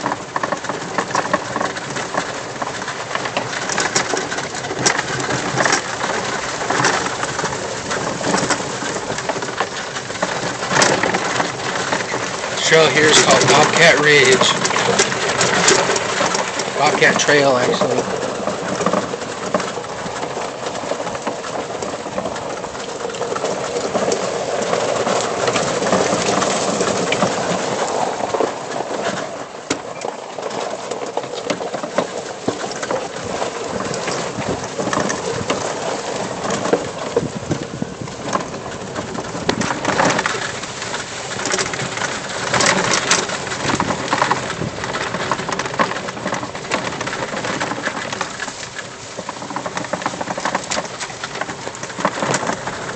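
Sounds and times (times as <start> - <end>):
cart body and tools rattling: 0.0 - 52.9
tires on dirt trail: 0.0 - 52.9.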